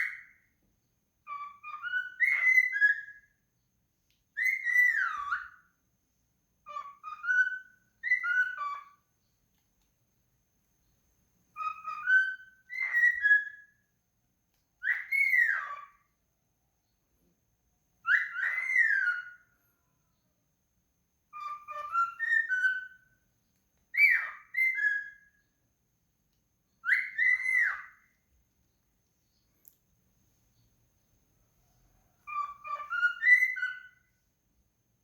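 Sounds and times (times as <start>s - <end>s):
bird whistling phrases: 0.0s - 0.4s, 1.3s - 3.3s, 4.4s - 5.6s, 6.7s - 9.0s, 11.6s - 13.8s, 14.8s - 16.1s, 18.0s - 19.5s, 21.3s - 23.1s, 23.9s - 25.4s, 26.8s - 28.2s, 32.2s - 34.1s.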